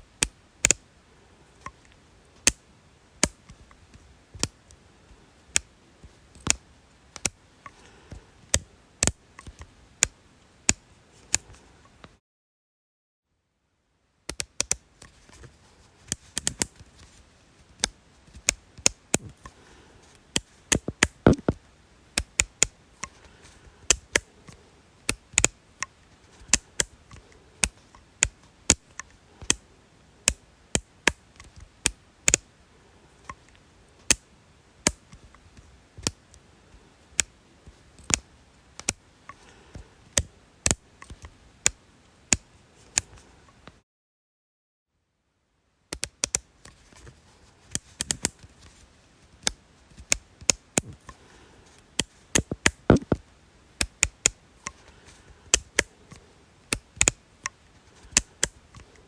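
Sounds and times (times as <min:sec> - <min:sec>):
sharp short clicks: 0:20.4 - 0:21.6, 0:52.4 - 0:53.2.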